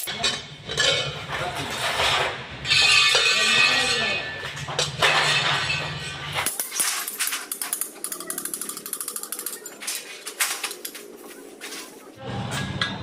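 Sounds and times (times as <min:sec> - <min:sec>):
metal mechanism ratcheting: 0:06.4 - 0:10.9.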